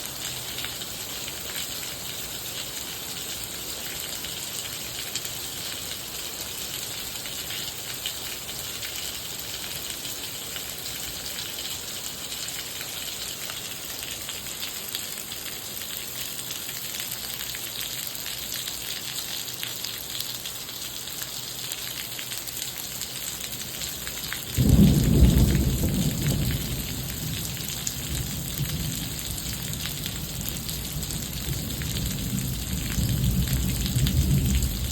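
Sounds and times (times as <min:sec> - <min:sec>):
steady rain falling: 0:00.0 - 0:34.9
thunder rumble: 0:24.6 - 0:34.9.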